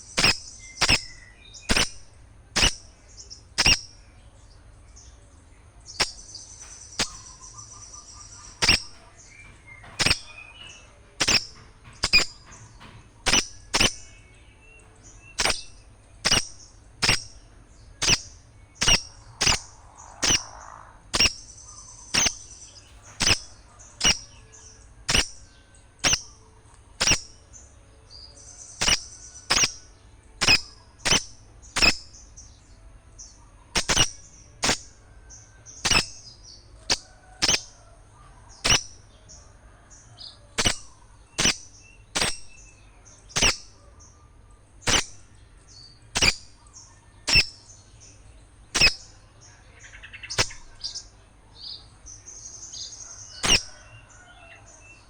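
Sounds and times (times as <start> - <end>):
bird sharp chips: 0.0 - 4.1, 5.9 - 26.4, 27.0 - 27.4, 28.8 - 29.8, 30.4 - 32.3, 33.8 - 34.9, 35.8 - 37.8, 38.5 - 39.1, 40.6 - 43.9, 44.8 - 45.4, 46.2 - 46.6, 47.3 - 47.6, 48.7 - 49.2, 50.0 - 51.0, 52.7 - 54.1
high bird twittering: 0.0 - 4.2, 5.8 - 32.5, 33.3 - 34.9, 35.7 - 44.2, 44.8 - 55.0.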